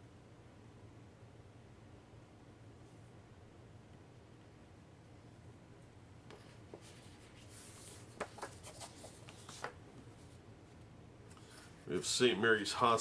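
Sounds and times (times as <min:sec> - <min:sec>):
paper map rustling: 0:06.3 - 0:12.0
soft taps on paper: 0:08.1 - 0:09.8.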